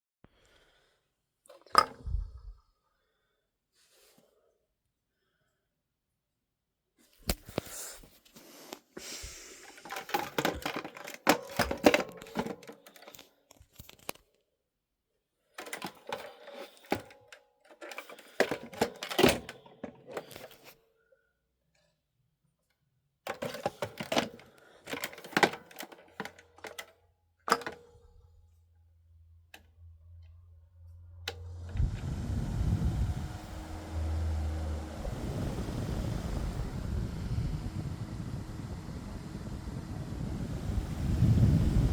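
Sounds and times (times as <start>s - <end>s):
plastic clicks and knocks: 9.8s - 14.2s
fan motor blowing air: 30.9s - 41.9s.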